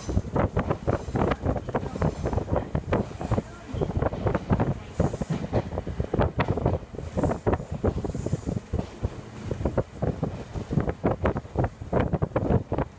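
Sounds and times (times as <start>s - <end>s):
train clattering knocks: 0.0s - 12.9s.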